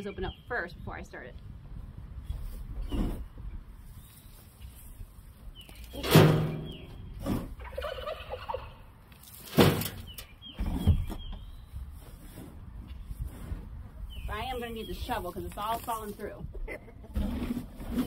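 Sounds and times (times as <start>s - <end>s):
turkey gobbling: 7.6s - 8.9s.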